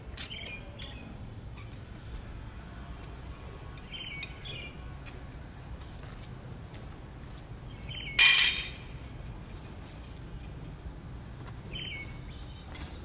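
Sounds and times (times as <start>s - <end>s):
sharp ringing clink: 8.2s - 9.0s.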